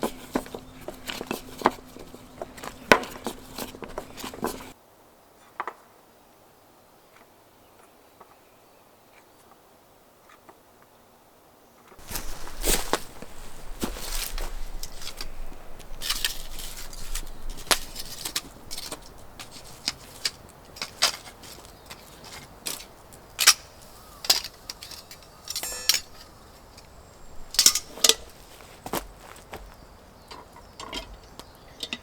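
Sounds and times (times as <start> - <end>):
small objects clicking and clinking: 22.6 - 26.9.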